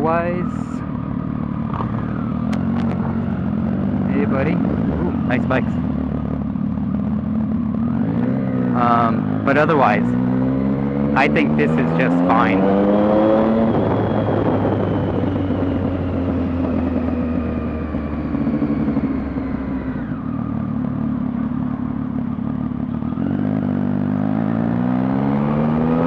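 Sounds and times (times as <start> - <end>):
motorcycle engine: 0.0 - 26.0
wind noise: 1.7 - 6.4, 12.5 - 19.6.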